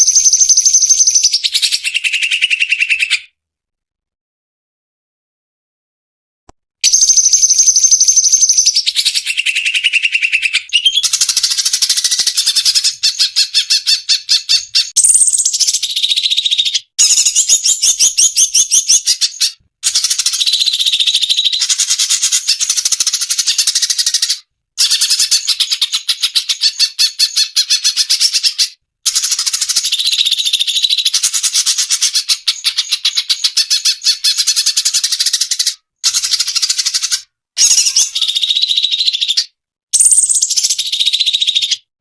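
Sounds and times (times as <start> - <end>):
bird chattering trills: 6.8 - 39.4.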